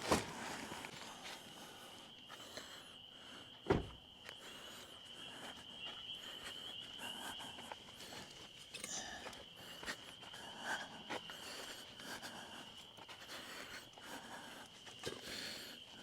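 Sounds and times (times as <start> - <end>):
crickets chirring: 0.0 - 16.0
loud thump: 3.7 - 4.0.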